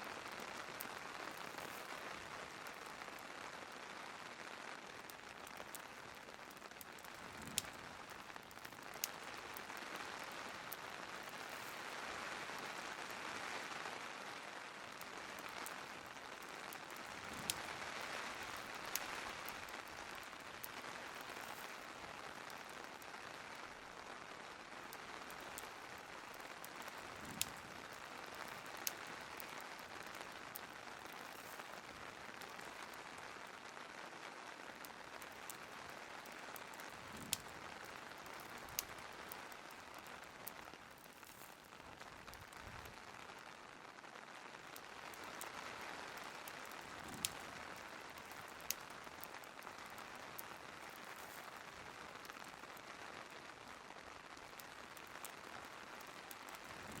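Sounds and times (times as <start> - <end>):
fireplace crackles: 0.0 - 57.0
rain hiss: 0.0 - 57.0.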